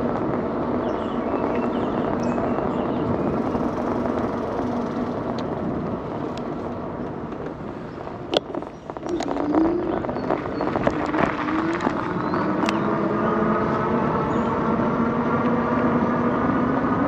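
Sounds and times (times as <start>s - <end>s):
bike tyres rolling on pavement: 0.0s - 17.0s
wind noise: 0.0s - 17.0s.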